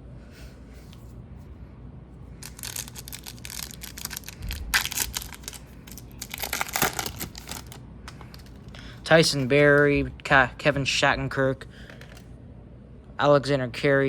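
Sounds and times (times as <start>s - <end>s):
foil card pack tearing: 2.4s - 8.6s
foil wrapper crinkling: 2.4s - 8.7s.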